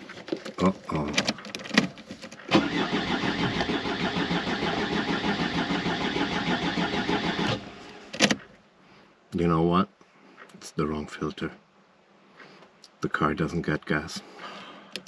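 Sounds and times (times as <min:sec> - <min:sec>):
diesel engine cranking: 0:02.4 - 0:08.5.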